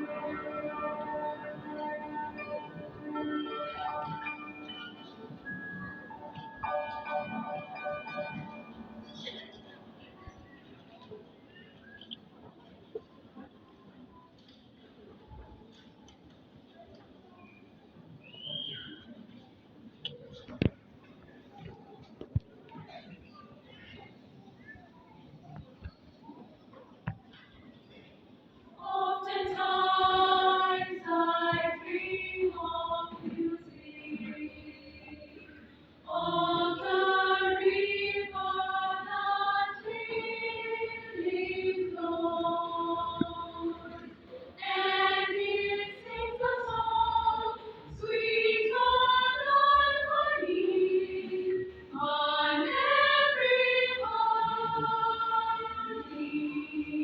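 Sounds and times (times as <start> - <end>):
choir singing long held notes: 0.0 - 10.0, 28.8 - 57.0.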